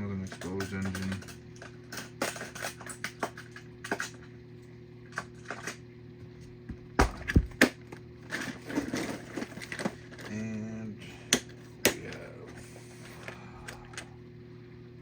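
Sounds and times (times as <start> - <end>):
toy cars clicking and clattering: 0.2 - 4.2, 8.3 - 10.4.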